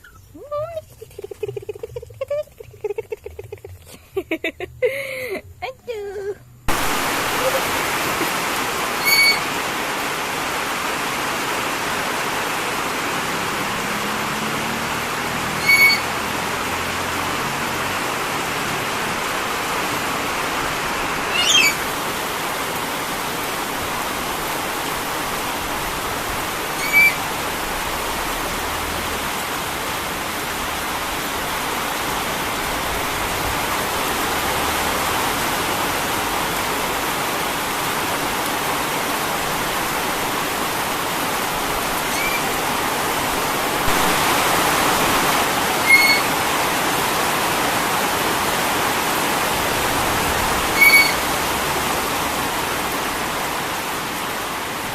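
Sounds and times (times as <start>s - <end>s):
falling water hissing: 6.7s - 54.9s
bird high chirps: 9.0s - 9.5s, 15.6s - 16.1s, 21.3s - 21.9s, 26.8s - 27.2s, 42.1s - 42.6s, 45.8s - 46.4s, 50.8s - 51.3s.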